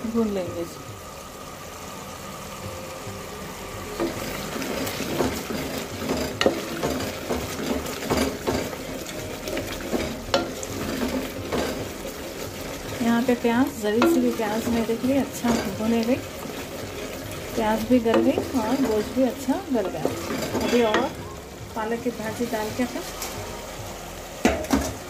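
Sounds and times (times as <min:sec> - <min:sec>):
meat and onion sizzling in a pot: 0:00.0 - 0:25.0
spoon scraping against a pot: 0:18.1 - 0:21.2.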